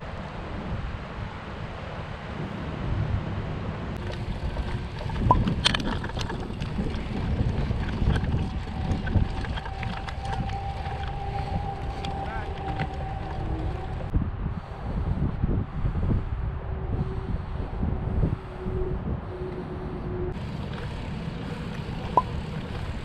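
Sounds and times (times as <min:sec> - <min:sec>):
wind buffeting microphone: 0:00.0 - 0:23.0
sharp clicks and rattles: 0:04.0 - 0:14.1.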